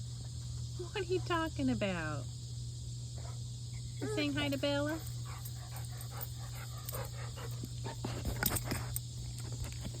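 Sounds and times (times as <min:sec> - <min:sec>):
puppy panting: 0:04.8 - 0:10.0.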